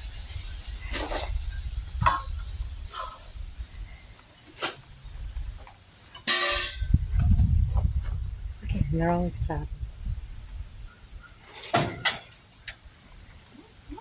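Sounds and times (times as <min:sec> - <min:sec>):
wind rumbling on microphone: 0:00.0 - 0:04.2, 0:04.8 - 0:05.7, 0:06.5 - 0:11.5.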